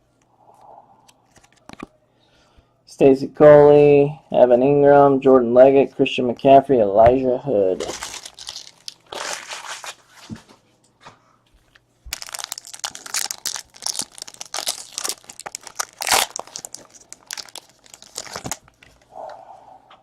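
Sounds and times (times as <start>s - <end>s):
wrapper torn open and crinkled: 7.8s - 10.0s, 12.1s - 18.8s.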